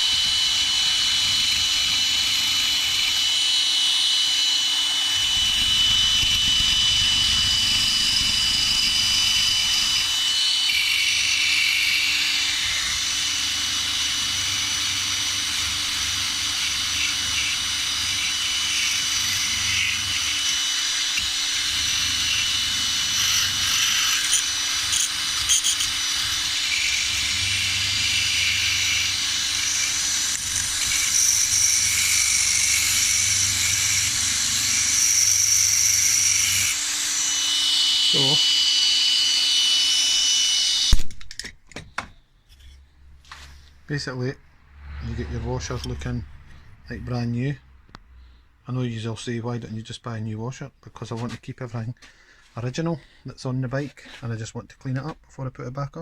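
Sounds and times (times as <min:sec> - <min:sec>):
electric power tool whining: 0:00.0 - 0:42.0.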